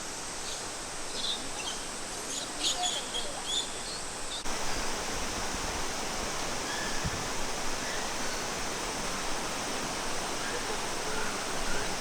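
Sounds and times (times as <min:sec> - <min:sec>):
waterfall rushing: 0:04.5 - 0:12.0.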